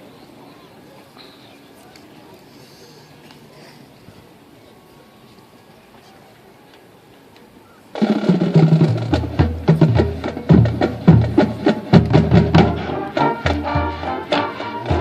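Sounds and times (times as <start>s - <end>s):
low brass notes: 8.0s - 15.0s
sharp drum accents: 8.0s - 15.0s.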